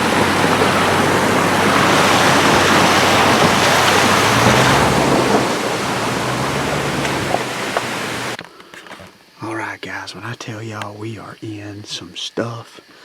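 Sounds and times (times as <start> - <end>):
low engine hum: 0.0 - 8.4
tyres on gravel road: 0.0 - 9.1.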